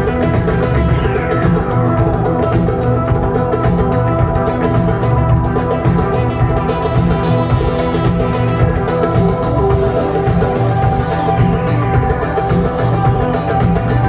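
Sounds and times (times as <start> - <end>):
rock band playing: 0.0 - 14.0.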